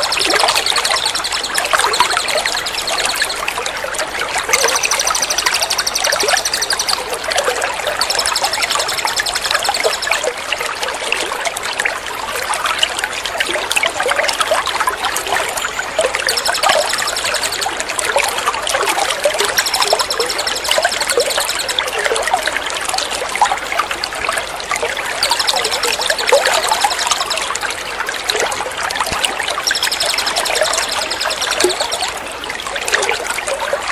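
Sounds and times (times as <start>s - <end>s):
bird trilling: 0.0s - 3.6s, 4.5s - 7.2s, 7.8s - 10.2s, 15.6s - 17.9s, 19.0s - 22.1s, 25.2s - 27.7s, 29.1s - 32.2s
water trickling: 0.0s - 33.9s.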